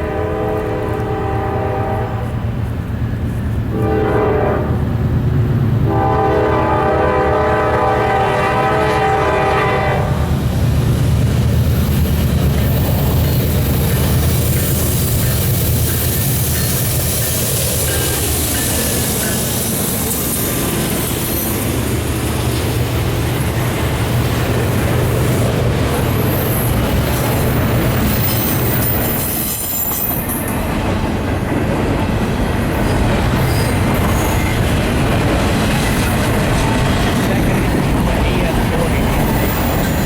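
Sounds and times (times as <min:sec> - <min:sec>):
diesel locomotive drone: 0:00.0 - 0:40.0
train wheels clacking and squealing: 0:10.6 - 0:40.0.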